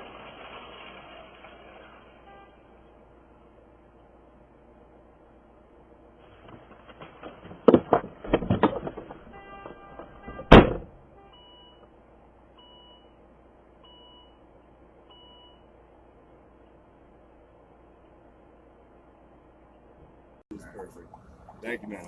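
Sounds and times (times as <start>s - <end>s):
car collision impacts and crunching: 0.0s - 2.2s, 6.2s - 11.2s.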